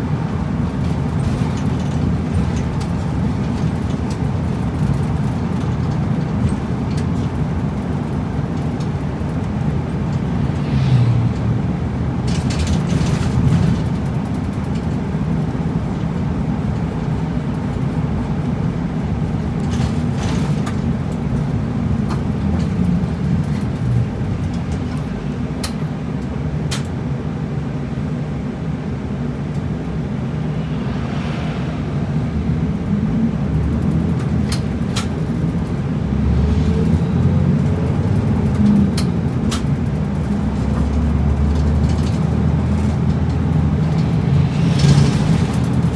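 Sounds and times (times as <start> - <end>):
bus engine and road rumble: 0.0 - 45.9
brief rushes of higher noise: 30.2 - 32.8.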